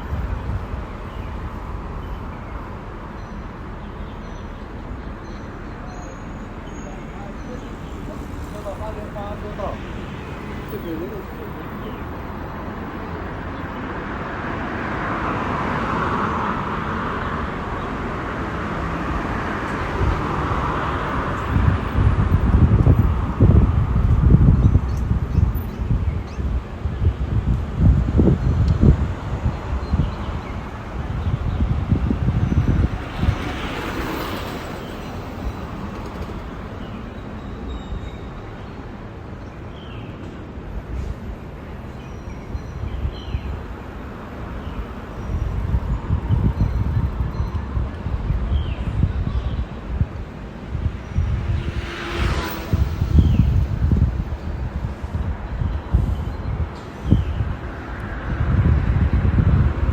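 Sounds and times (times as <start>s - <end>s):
wind gusting on microphone: 0.0s - 59.9s
vehicle passing on road: 6.3s - 25.3s, 27.2s - 37.5s, 43.6s - 56.2s, 57.0s - 59.9s.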